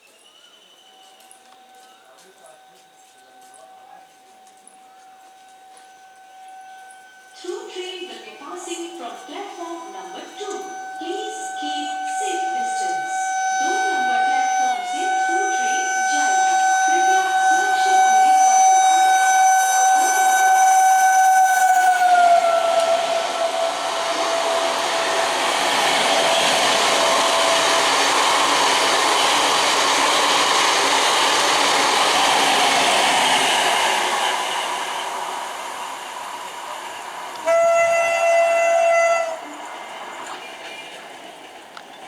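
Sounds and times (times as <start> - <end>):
train rumbling past: 0.2 - 42.0
train horn blast: 1.0 - 30.4, 37.3 - 39.9.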